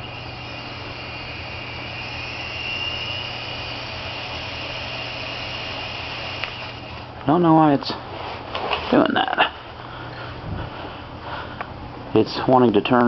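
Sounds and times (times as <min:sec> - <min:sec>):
toy helicopter motor whine: 0:00.0 - 0:07.1.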